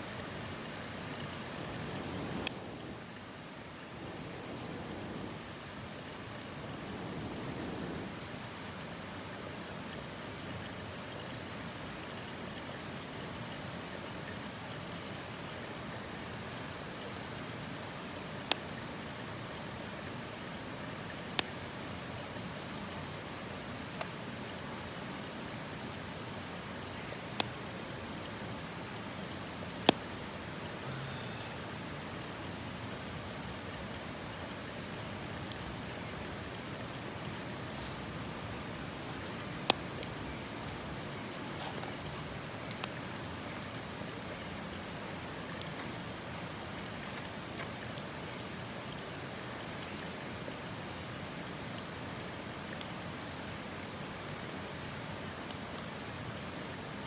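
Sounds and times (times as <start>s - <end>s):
campfire hissing: 0.0s - 57.0s
sharp fire pops: 2.3s - 2.7s.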